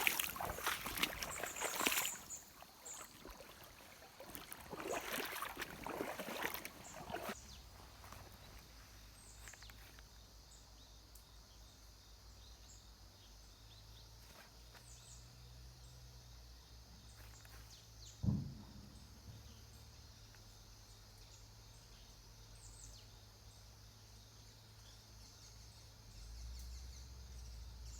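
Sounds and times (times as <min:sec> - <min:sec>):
water splashing and sloshing: 0:00.0 - 0:08.7, 0:18.2 - 0:19.8
dull thump: 0:18.2 - 0:19.8.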